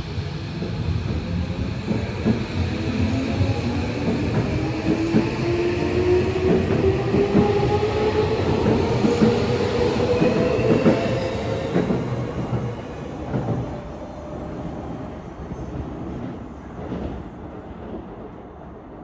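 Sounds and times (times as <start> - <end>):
train wheels clicking on rails: 0.4 - 18.4.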